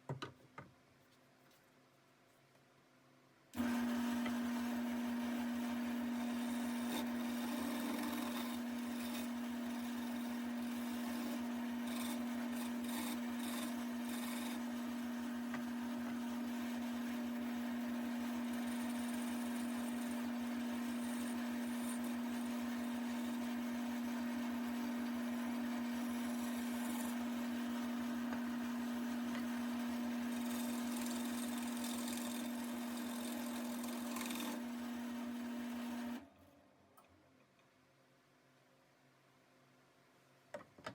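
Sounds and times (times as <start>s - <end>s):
turning tool scraping wood: 3.6s - 36.2s
wood lathe motor hum: 3.6s - 36.2s.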